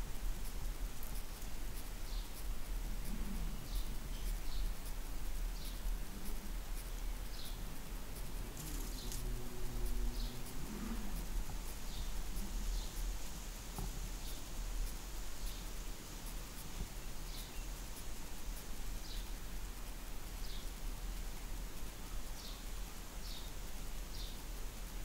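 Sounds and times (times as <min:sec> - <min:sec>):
steady low rumble: 0:00.0 - 0:22.1
small bird chirping: 0:00.4 - 0:09.4, 0:15.3 - 0:19.5, 0:20.3 - 0:20.8, 0:22.0 - 0:24.4
low drone: 0:02.8 - 0:13.6.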